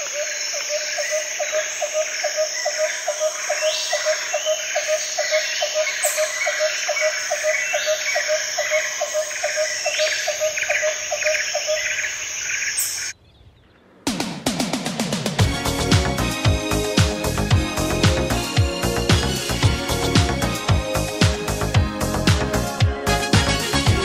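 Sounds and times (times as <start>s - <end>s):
frogs calling: 0.0s - 13.8s
insects chirping: 0.0s - 13.8s
bird chirps: 0.0s - 13.9s.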